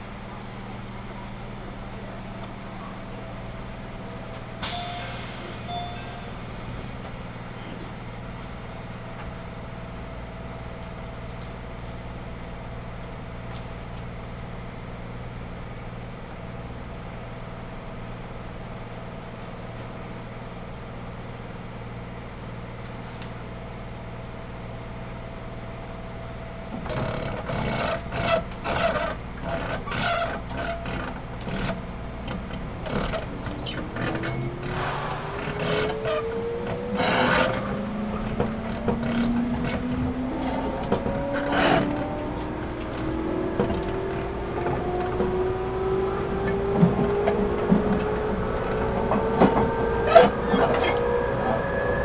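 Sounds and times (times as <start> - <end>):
train equipment hum: 0.0 - 52.0
knocking rattling and rumbling: 26.8 - 50.8
rising tone: 33.5 - 52.0.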